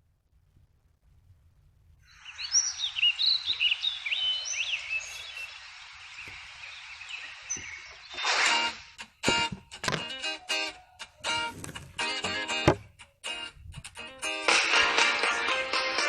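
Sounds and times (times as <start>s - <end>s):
outdoor background hiss: 0.0s - 16.0s
birds chirping and whistling: 2.1s - 11.7s.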